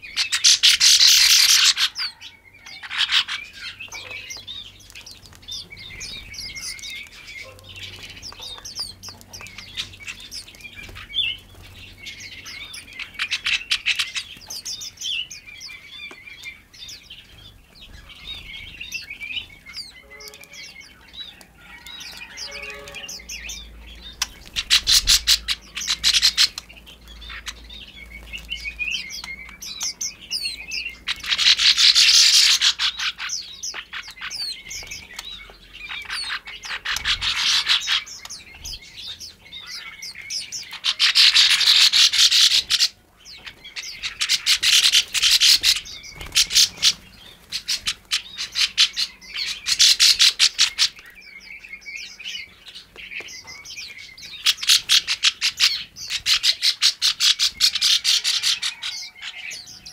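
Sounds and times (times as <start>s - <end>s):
songbirds chirping and twittering: 0.0s - 59.9s.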